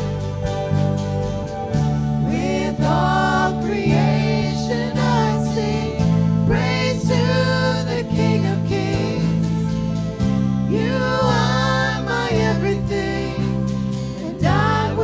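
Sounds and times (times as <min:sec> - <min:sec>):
sustained instrumental chords: 0:00.0 - 0:15.0.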